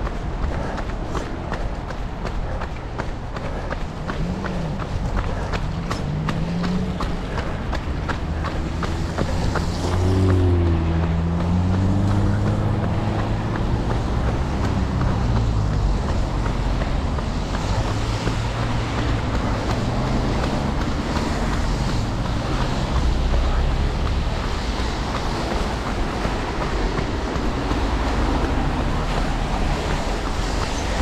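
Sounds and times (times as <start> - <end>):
footsteps on trail: 0.0 - 31.0
wind rumble on microphone: 6.9 - 31.0.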